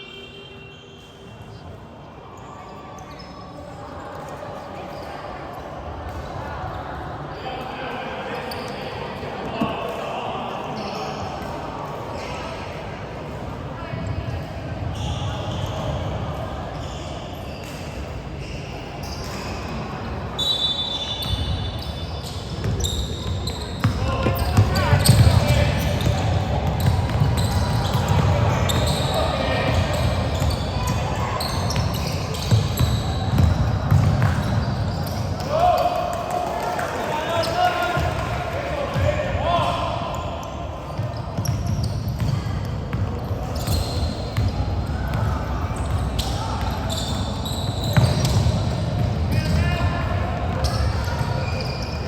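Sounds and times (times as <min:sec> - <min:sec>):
shoe squeaks: 0:00.0 - 0:01.6, 0:02.3 - 0:05.2, 0:14.9 - 0:16.0, 0:16.7 - 0:35.9, 0:40.4 - 0:49.8, 0:50.5 - 0:52.0
gym background noise: 0:00.0 - 0:52.0
ball bouncing on hardwood court: 0:22.6 - 0:35.2, 0:41.0 - 0:46.7.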